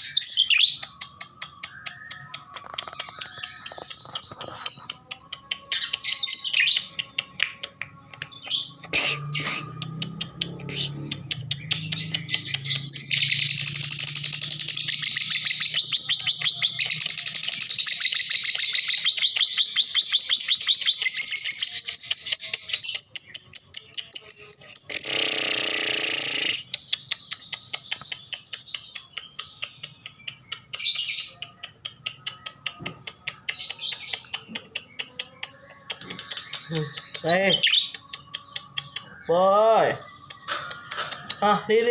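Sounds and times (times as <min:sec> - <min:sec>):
lovebird chattering: 0:24.1 - 0:39.3.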